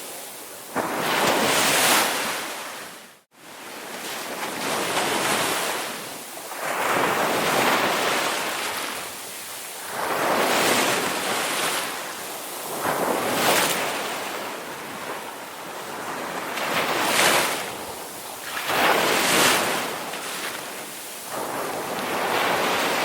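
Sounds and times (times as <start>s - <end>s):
ocean waves breaking: 0.0s - 23.0s.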